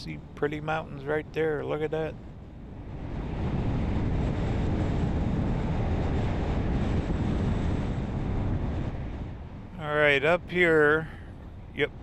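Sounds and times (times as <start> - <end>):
vehicle road and engine noise: 0.0 - 12.0.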